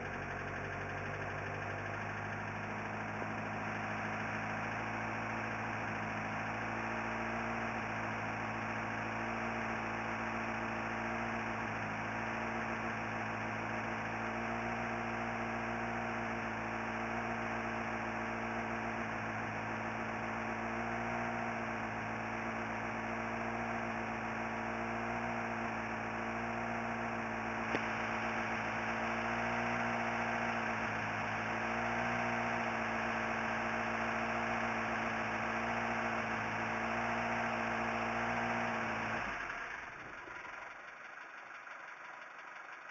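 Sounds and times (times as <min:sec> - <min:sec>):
car engine idling: 0:00.0 - 0:42.9
click: 0:27.7 - 0:27.9.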